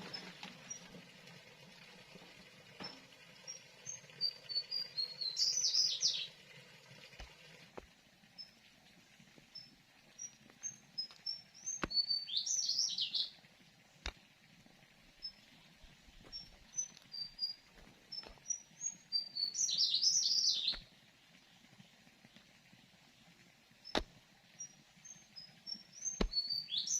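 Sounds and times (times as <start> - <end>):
songbird singing: 2.8 - 6.4, 9.4 - 14.3, 14.9 - 22.4, 23.8 - 26.9.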